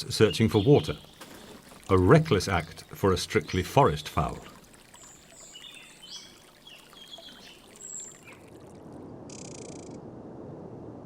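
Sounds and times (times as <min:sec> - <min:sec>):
small birds chirping: 0:00.0 - 0:08.5
water trickling: 0:00.0 - 0:09.9
water rushing: 0:00.0 - 0:10.0.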